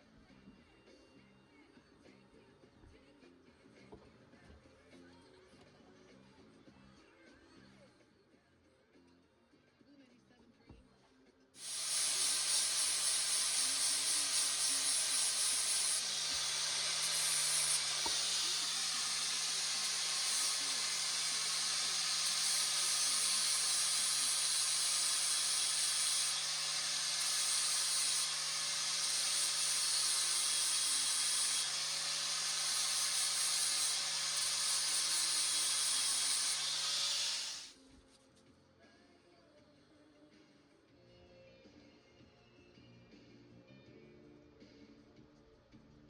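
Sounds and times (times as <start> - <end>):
loud steady hiss: 11.6 - 37.7.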